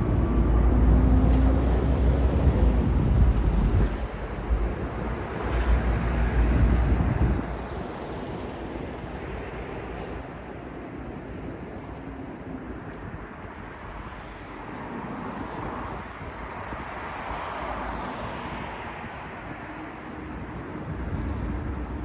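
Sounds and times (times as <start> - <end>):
large vehicle passing rumble: 0.0 - 9.9
city street traffic hum: 0.0 - 22.0.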